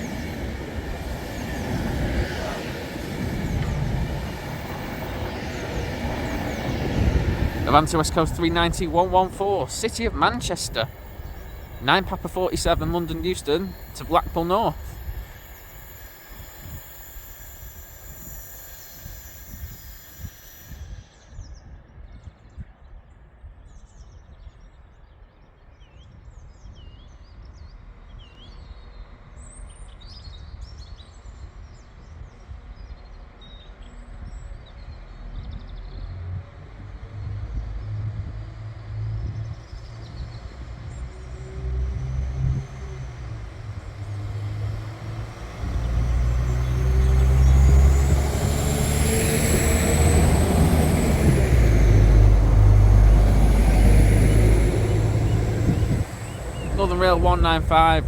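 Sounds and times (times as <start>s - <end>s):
station background noise: 0.0s - 20.7s, 40.5s - 58.0s
birds chirping: 0.0s - 20.8s, 39.8s - 58.0s
train rumble: 0.0s - 21.1s, 36.2s - 58.0s
electric train whine: 0.0s - 21.6s, 34.8s - 58.0s.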